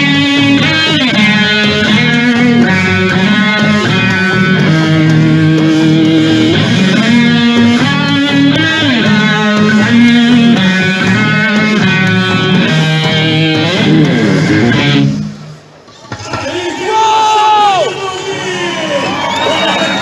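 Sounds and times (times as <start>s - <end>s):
bass guitar: 0.0s - 15.6s
electric guitar playing: 0.0s - 15.9s.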